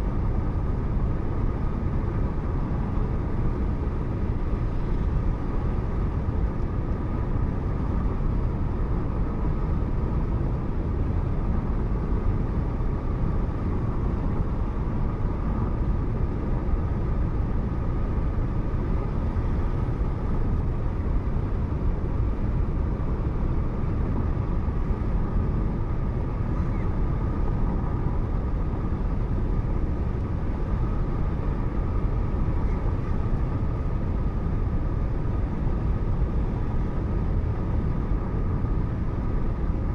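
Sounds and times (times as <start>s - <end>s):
car road and engine noise: 0.0s - 39.9s
faint steady whine: 0.0s - 39.9s.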